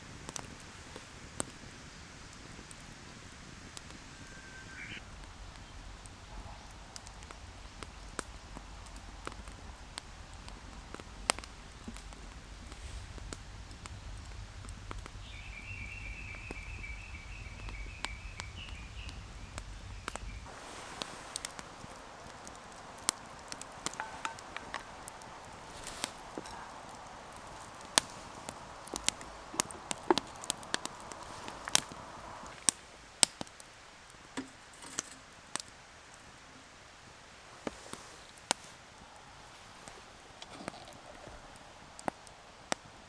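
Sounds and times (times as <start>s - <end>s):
sharp clicks and snaps: 16.3s - 33.7s.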